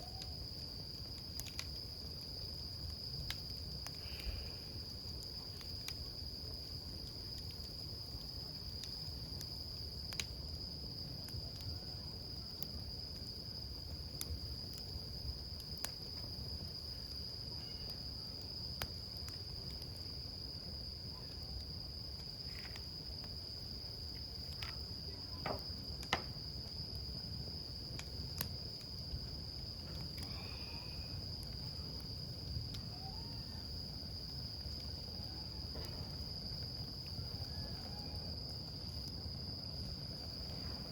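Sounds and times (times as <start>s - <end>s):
campfire crackling and popping: 0.0s - 40.9s
high-pitched insect trill: 11.9s - 40.9s.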